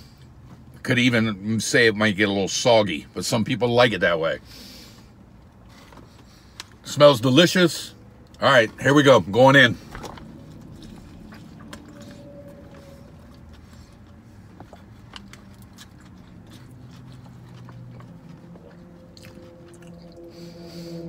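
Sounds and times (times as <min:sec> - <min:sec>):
man chewing sandwich: 0:04.7 - 0:06.8, 0:09.7 - 0:21.0.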